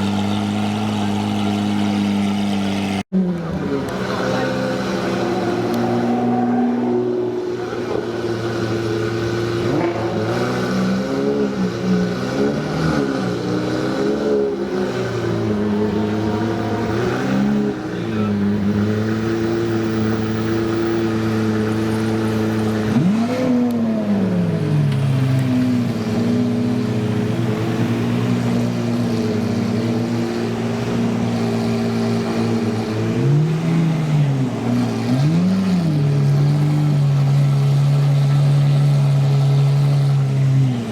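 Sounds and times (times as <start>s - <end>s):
sports car engines idling: 0.0s - 5.8s, 23.8s - 40.9s.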